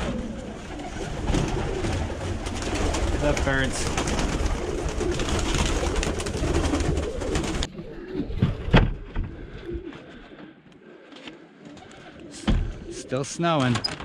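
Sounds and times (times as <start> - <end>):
pigeons cooing: 0.0 - 13.2.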